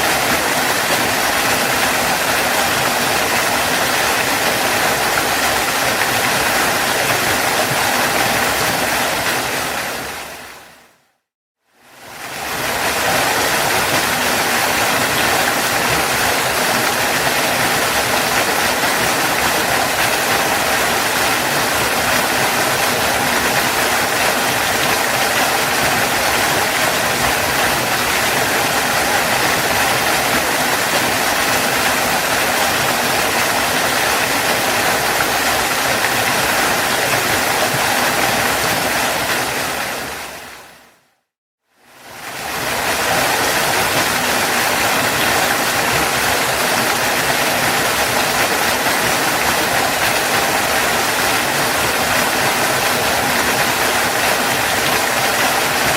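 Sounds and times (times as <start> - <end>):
waterfall roaring: 0.0 - 11.0, 12.0 - 40.9, 42.0 - 55.9.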